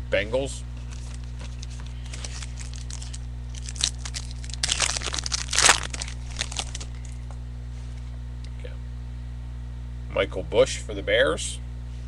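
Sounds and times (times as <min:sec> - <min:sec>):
wrapper crinkling and tearing: 0:00.9 - 0:07.2.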